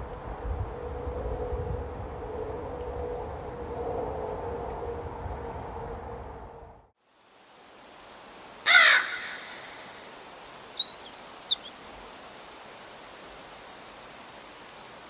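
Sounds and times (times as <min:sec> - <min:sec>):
low hum: 0:00.0 - 0:06.9
faint hiss: 0:07.0 - 0:15.0
harsh bird call: 0:08.7 - 0:11.9
small bird high thin chirps: 0:10.6 - 0:11.9.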